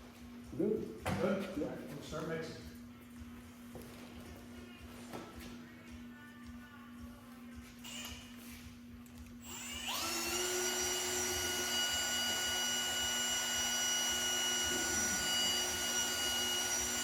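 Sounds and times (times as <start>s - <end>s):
electric drill whining: 7.8s - 8.6s, 9.4s - 17.0s.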